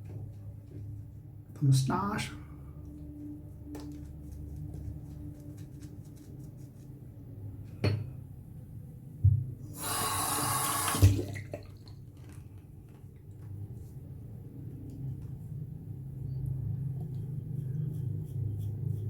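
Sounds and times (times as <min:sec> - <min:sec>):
sink tap running: 0:09.7 - 0:11.2.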